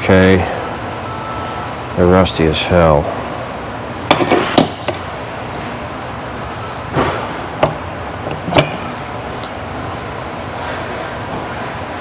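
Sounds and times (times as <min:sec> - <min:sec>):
steady background noise: 0:00.0 - 0:12.0
tools knocking and clinking: 0:04.1 - 0:05.0, 0:07.0 - 0:09.6.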